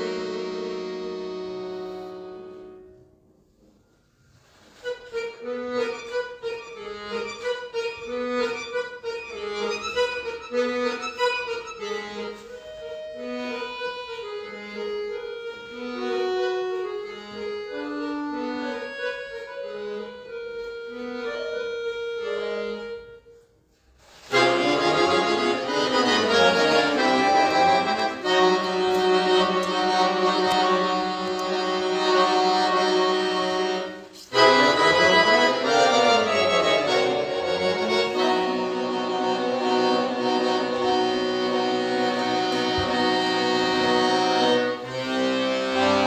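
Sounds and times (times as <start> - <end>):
solo accordion playing: 0.0 - 46.0.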